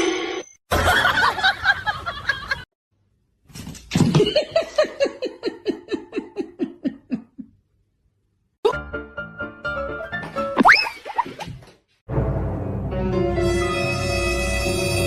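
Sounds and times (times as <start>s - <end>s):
person laughing: 4.2s - 7.6s.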